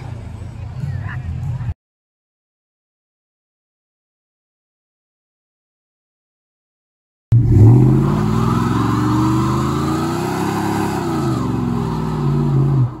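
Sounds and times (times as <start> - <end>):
vehicle engine revving: 7.3 - 13.0.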